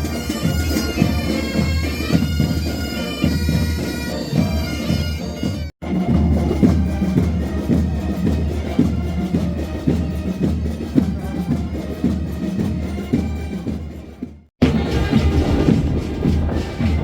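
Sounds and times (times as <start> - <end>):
military band music: 0.0 - 17.0
steady drumbeat: 0.0 - 17.0.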